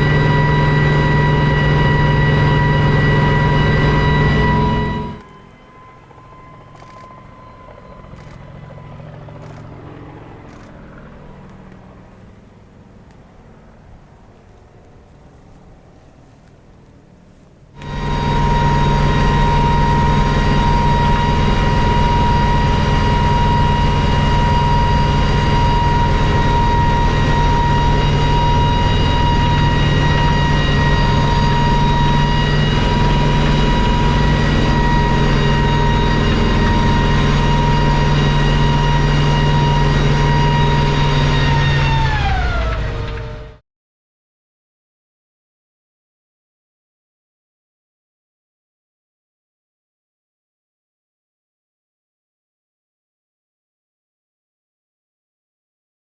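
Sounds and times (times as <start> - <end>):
helicopter engines and rotors: 0.0 - 43.6.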